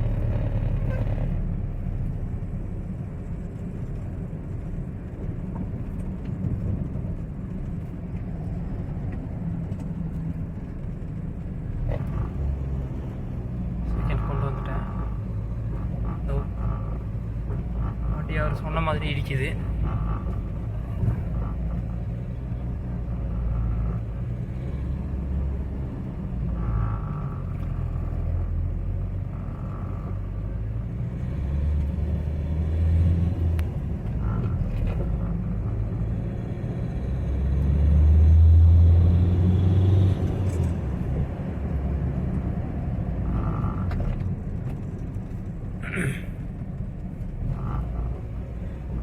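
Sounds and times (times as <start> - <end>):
diesel car engine and road rumble: 0.0 - 49.0.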